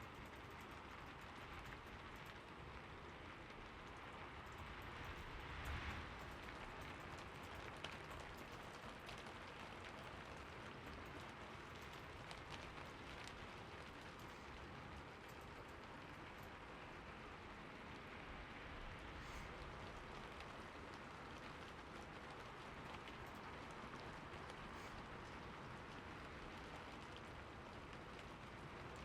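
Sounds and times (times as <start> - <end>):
faint steady rain: 0.0 - 29.0.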